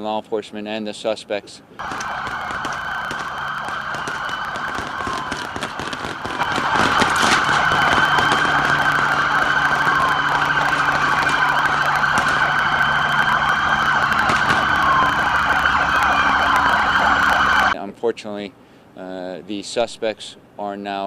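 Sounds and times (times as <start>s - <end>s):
gunfire cracks: 1.8s - 16.7s
police sirens wailing: 1.8s - 17.8s
traffic and engine noise: 1.8s - 17.8s.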